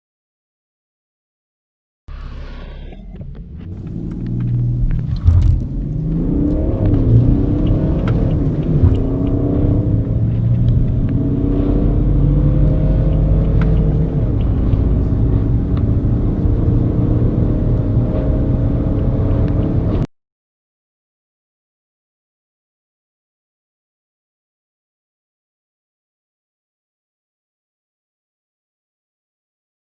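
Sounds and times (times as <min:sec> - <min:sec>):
diesel car engine accelerating: 0:02.1 - 0:20.1.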